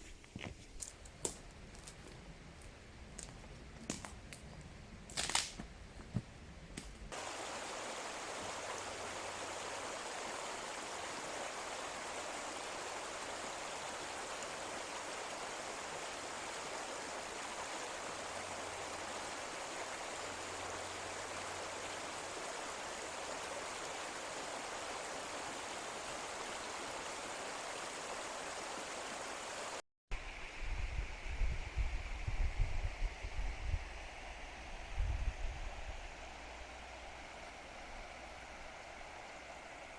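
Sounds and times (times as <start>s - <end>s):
stream water rushing: 7.1s - 29.8s, 35.7s - 39.9s.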